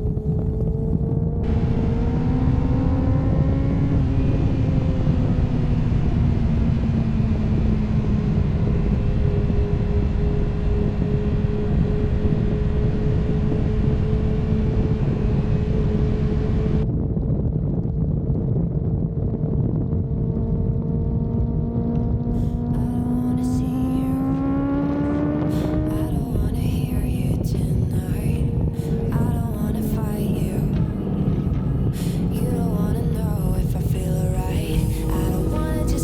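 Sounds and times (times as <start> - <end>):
motorcycle engine running: 0.0 - 16.9, 17.6 - 36.0
wind and road noise: 0.0 - 36.0.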